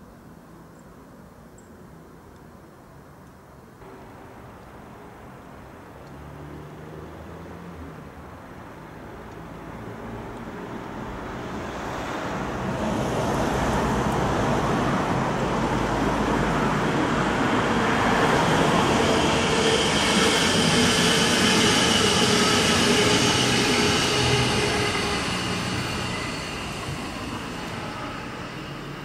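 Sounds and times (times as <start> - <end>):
train rolling noise: 9.7 - 29.0
steady high whine: 16.6 - 29.0.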